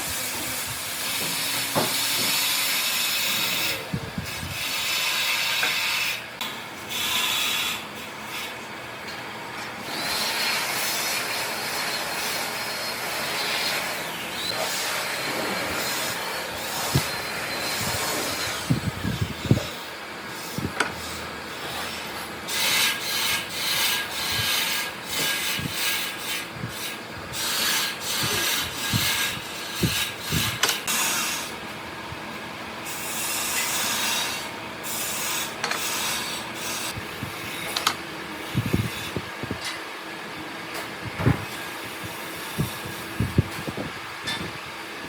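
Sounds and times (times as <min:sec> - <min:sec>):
rasping strokes on wood: 0:20.4 - 0:31.5.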